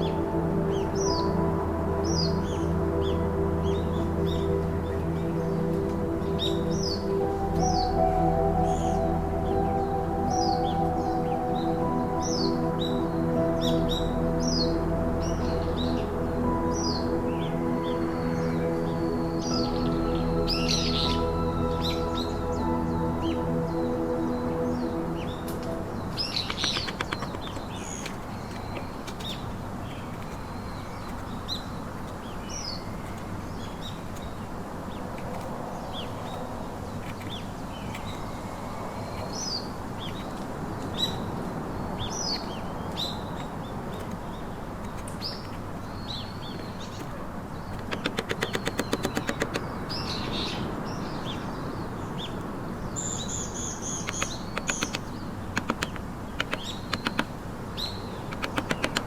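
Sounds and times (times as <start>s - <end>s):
small birds chirping: 0.0s - 59.0s
steady background hiss: 0.0s - 59.0s
sharp taps: 47.8s - 49.7s, 54.1s - 57.3s, 58.3s - 59.0s.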